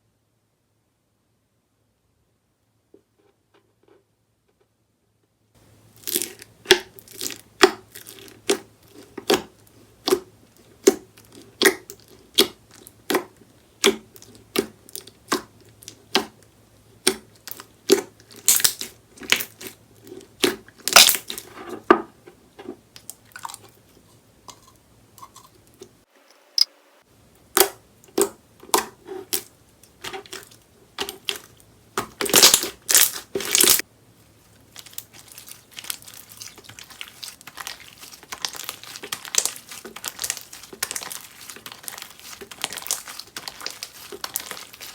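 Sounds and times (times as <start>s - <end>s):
slime crackling: 5.9s - 16.4s, 17.0s - 21.7s, 27.5s - 33.8s, 34.4s - 44.9s
slime squeezed by hand: 34.8s - 44.9s.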